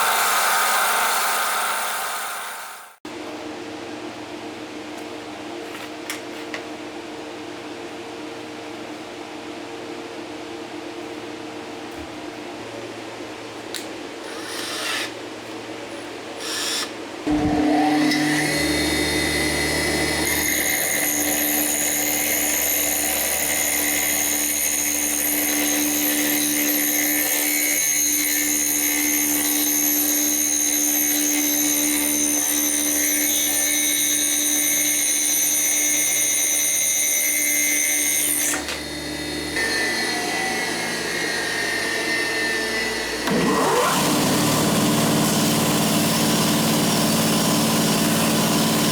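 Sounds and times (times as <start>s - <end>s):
power tool whining: 16.4s - 48.9s.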